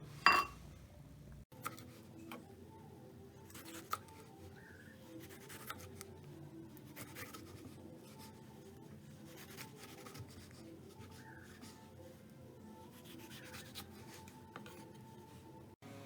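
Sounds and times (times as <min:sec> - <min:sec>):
kitchen utensil scraping: 0:00.0 - 0:00.6.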